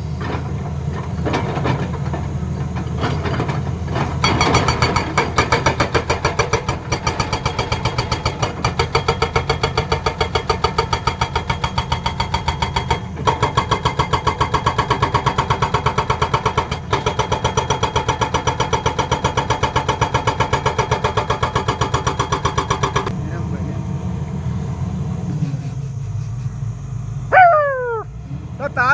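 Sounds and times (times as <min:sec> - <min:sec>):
diesel engine running: 0:00.0 - 0:18.0, 0:21.0 - 0:28.9
hydraulic breaker hammering: 0:00.2 - 0:23.1.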